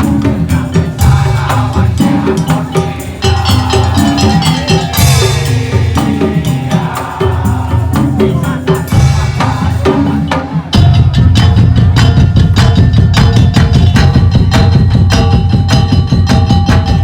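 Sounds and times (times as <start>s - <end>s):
fast percussion ensemble: 0.0s - 17.0s
heavy bass drums: 0.0s - 17.0s
bright cymbal crash: 1.0s - 7.4s, 8.8s - 11.7s.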